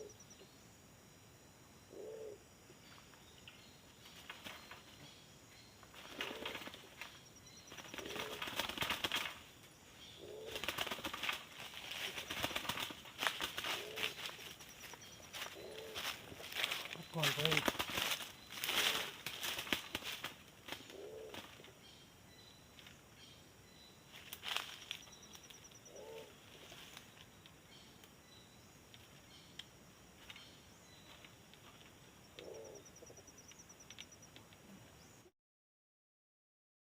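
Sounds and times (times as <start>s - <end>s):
dove cooing: 0.0s - 0.2s, 1.9s - 2.4s, 6.0s - 7.0s, 7.7s - 9.3s, 10.2s - 20.1s, 20.7s - 21.7s, 25.8s - 26.8s, 32.3s - 33.3s.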